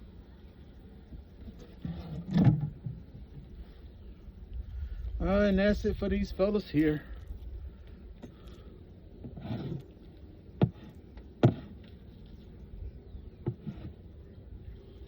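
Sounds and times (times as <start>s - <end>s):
wood scraping: 9.2s - 12.6s, 13.4s - 14.1s
sharp wooden knocks: 10.6s - 11.7s.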